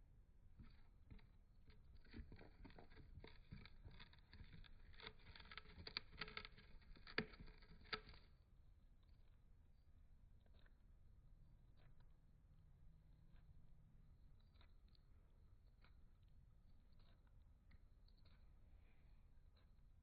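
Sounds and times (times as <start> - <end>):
bird nibbling cardboard tube: 0.6 - 8.3.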